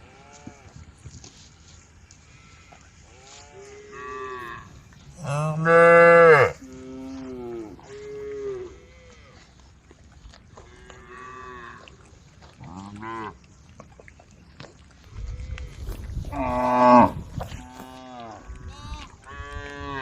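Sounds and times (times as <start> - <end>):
cows mooing: 2.4 - 9.4, 15.8 - 20.0.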